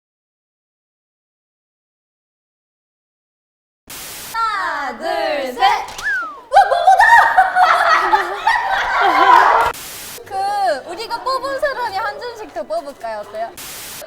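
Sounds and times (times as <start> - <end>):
woman laughing: 4.4 - 13.5
woman's playful vocal noises: 4.4 - 13.6.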